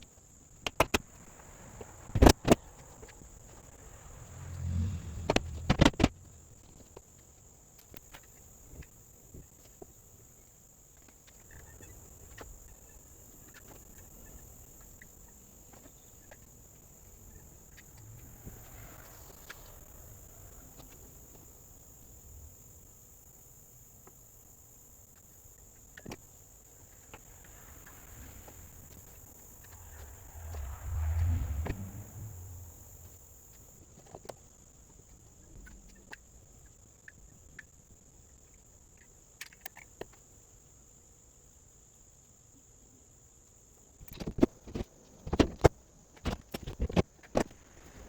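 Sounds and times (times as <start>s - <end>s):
insects droning: 0.1s - 33.8s.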